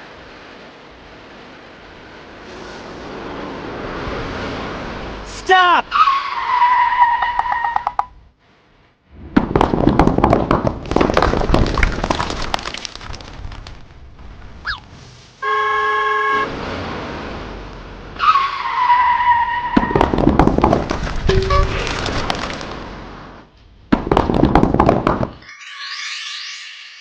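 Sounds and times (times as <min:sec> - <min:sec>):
engine rumble: 0:08.0 - 0:25.4
tyres screeching: 0:14.6 - 0:14.9
car horn honking: 0:15.4 - 0:16.5.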